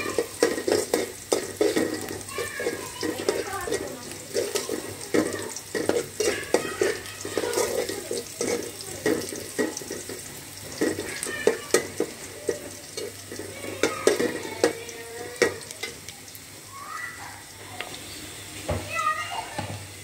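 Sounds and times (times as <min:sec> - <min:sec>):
metal spatula scraping a pot: 0:00.0 - 0:14.7
onions sizzling in oil: 0:00.0 - 0:20.0.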